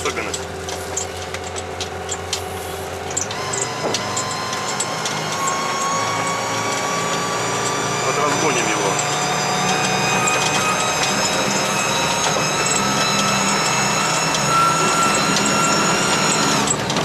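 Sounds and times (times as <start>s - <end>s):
vehicle engine drone: 0.0s - 17.0s
high-pitched whine: 3.2s - 16.8s.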